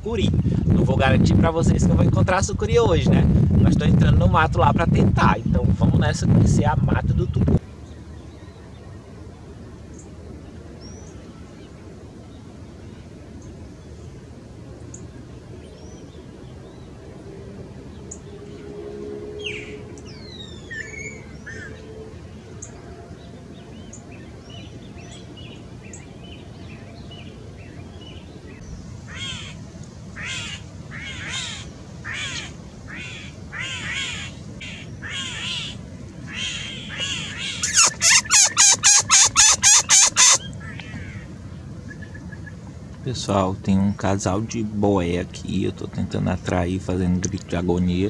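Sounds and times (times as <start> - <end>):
harsh downward-sweeping bird calls: 18.0 - 21.9, 28.6 - 29.6, 30.2 - 41.3.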